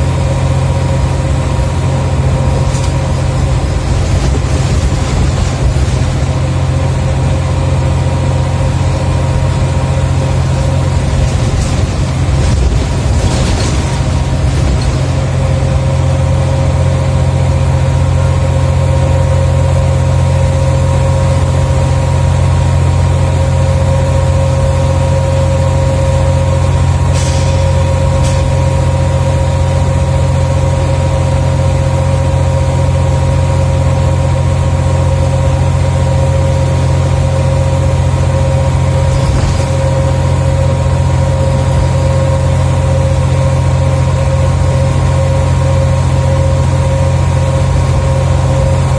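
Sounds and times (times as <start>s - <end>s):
bus engine running with whine: 0.0s - 48.9s
short high hisses: 27.1s - 28.4s.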